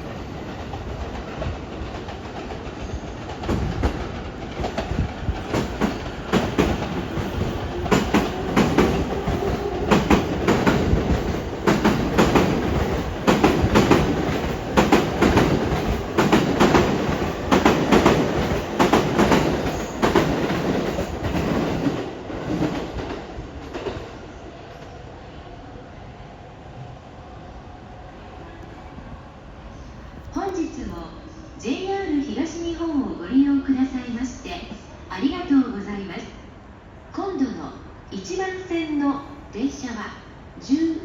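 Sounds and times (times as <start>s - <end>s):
train rumble: 0.0s - 31.8s
train wheels clacking on rail joints: 0.4s - 24.1s.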